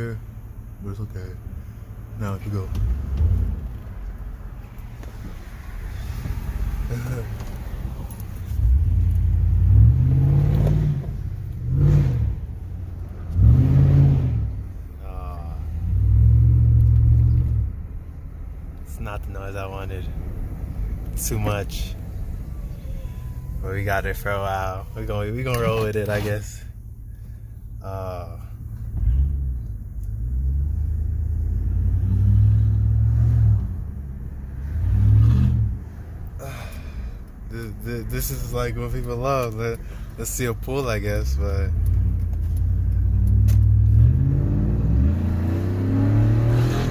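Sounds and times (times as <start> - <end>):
engine exhaust deep rumble: 0.0 - 46.9
engine revving with open exhaust: 8.6 - 14.7, 15.4 - 17.7, 29.0 - 36.0, 41.2 - 46.9.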